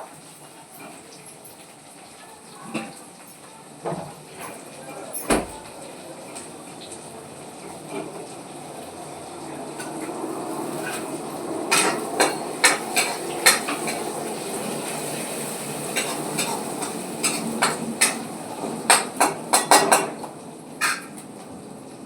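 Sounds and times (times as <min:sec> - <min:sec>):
metal utensil scraping a pan: 0:20.8 - 0:21.2.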